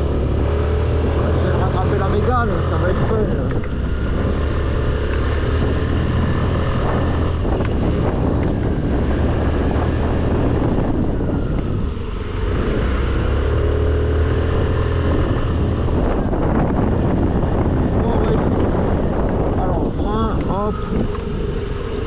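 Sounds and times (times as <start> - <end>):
scooter engine running: 0.0 - 22.0
wind and road noise: 0.0 - 22.0.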